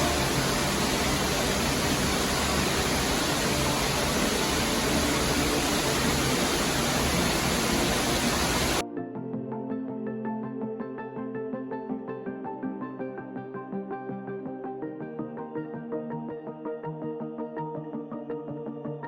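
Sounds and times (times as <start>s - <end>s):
loud rushing noise: 0.0s - 8.8s
low hum: 0.0s - 8.8s
background music: 0.0s - 19.0s.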